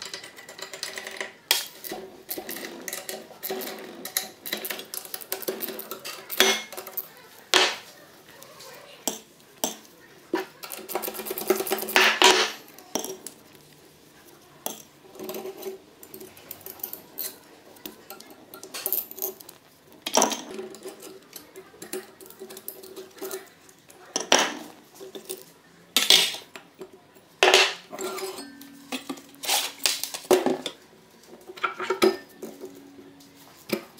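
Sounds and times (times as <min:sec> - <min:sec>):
metal tools clinking: 0:14.7 - 0:23.6, 0:27.4 - 0:33.9.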